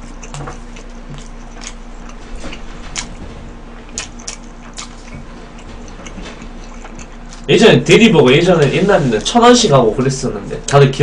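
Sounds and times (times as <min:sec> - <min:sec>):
wet chewing clicks: 0:00.0 - 0:03.2, 0:03.8 - 0:07.5
faint steady hum: 0:00.0 - 0:11.0.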